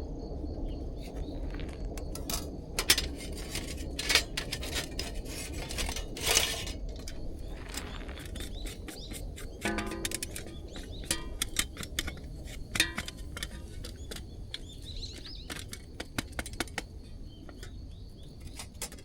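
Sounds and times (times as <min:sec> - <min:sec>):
hard objects clinking and knocking: 0:02.0 - 0:16.9.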